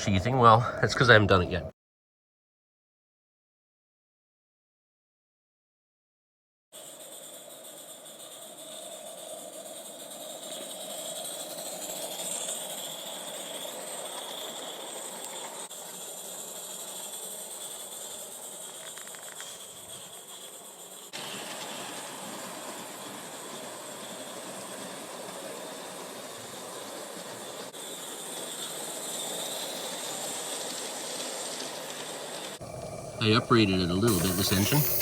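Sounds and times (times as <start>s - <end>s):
hiss of escaping steam: 32.6s - 35.0s.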